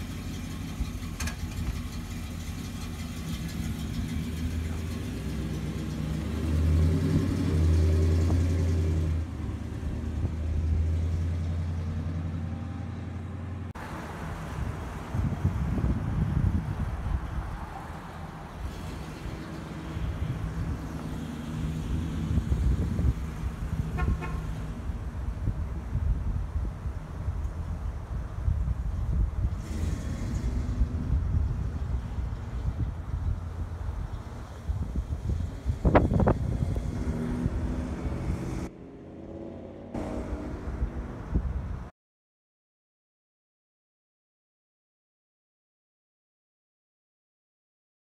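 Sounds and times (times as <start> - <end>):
car engine running: 0.0 - 6.8
car engine low rumble: 0.0 - 41.9
wind buffeting microphone: 14.3 - 38.3, 40.6 - 41.9
car horn toot: 23.9 - 24.6.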